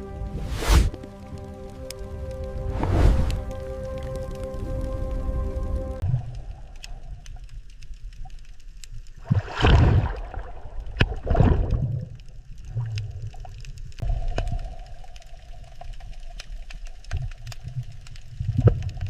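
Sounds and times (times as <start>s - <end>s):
rushing swells of water: 0.0s - 6.6s
low underwater rumble: 0.0s - 19.0s.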